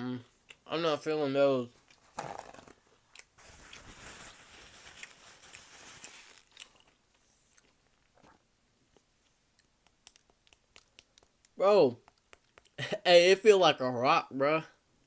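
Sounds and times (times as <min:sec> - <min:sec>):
chewing and crunching: 0:05.0 - 0:12.8.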